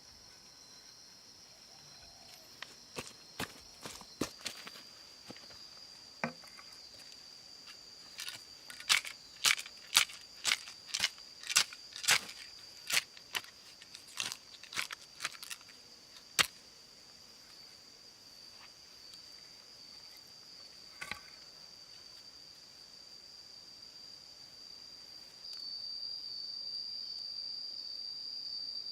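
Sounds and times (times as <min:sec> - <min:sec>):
insect drone: 0:00.0 - 0:28.9
sharp cracks on wood: 0:08.2 - 0:15.6.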